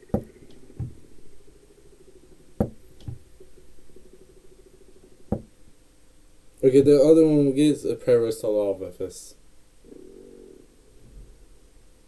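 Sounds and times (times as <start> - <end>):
dull knocks: 0.0 - 1.2, 2.6 - 3.4, 5.3 - 5.6
faint low hum: 0.0 - 12.0.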